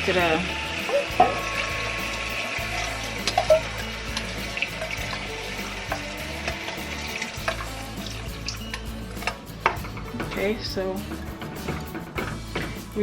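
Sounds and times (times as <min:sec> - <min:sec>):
chicken sizzling in hot oil: 0:00.0 - 0:13.0
utensil clicking against pot: 0:03.2 - 0:13.0.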